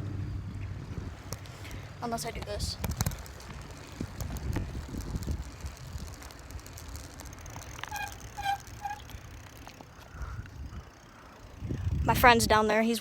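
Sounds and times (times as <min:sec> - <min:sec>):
bicycle road rumble: 0:00.0 - 0:13.0
wind: 0:00.0 - 0:13.0
short pitched squeaks: 0:07.7 - 0:09.2.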